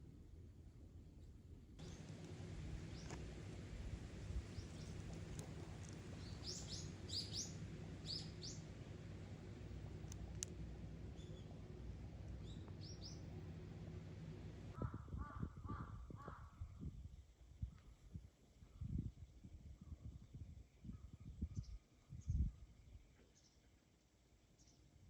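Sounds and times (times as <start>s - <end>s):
small birds chirping: 1.8s - 14.6s.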